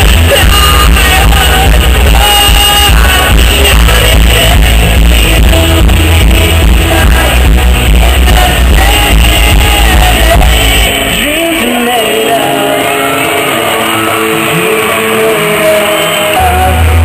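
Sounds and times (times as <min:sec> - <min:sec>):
heavy bass: 0:00.0 - 0:12.4
amplified singing: 0:00.0 - 0:17.0
electric guitar: 0:00.0 - 0:17.0
live pop-rock band: 0:00.0 - 0:17.0.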